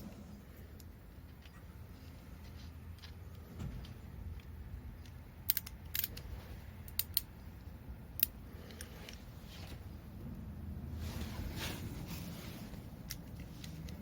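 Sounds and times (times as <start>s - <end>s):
low steady hum: 0.0s - 14.0s
metallic clicks of hand tools: 4.3s - 7.3s, 8.2s - 9.2s.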